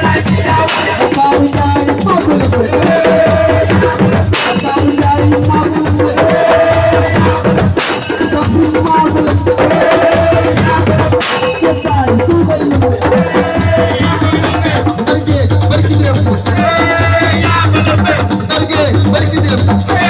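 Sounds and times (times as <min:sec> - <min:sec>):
band music with dense drumming: 0:00.0 - 0:20.0.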